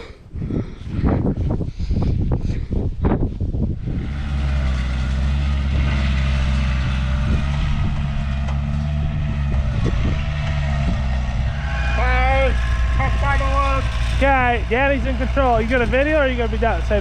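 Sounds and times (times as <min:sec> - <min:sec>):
skid steer engine running: 0:03.8 - 0:17.0.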